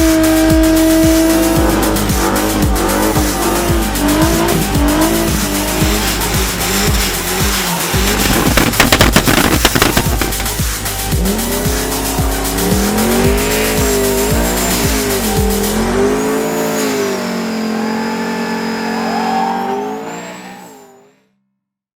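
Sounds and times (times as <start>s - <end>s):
background music beat: 0.0s - 17.4s
car engine revving: 0.0s - 21.2s
tyres squealing: 1.7s - 20.6s.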